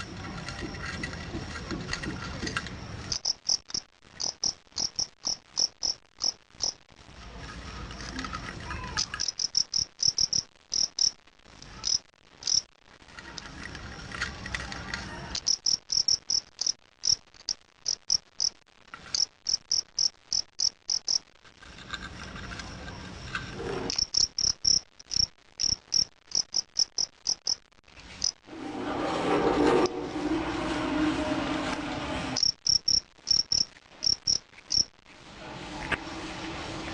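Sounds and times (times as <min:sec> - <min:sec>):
cricket chirping: 0:00.0 - 0:06.9, 0:09.0 - 0:11.2, 0:11.8 - 0:12.7, 0:15.4 - 0:21.3, 0:21.9 - 0:28.5, 0:32.4 - 0:35.0.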